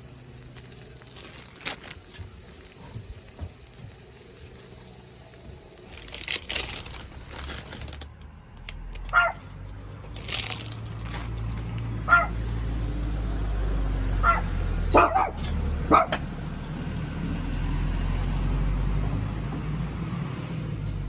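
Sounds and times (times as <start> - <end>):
rustling crinkling handling noises: 0.4 - 8.1, 9.1 - 12.0
small dog yipping: 9.1 - 9.4, 12.1 - 12.4, 14.2 - 16.2.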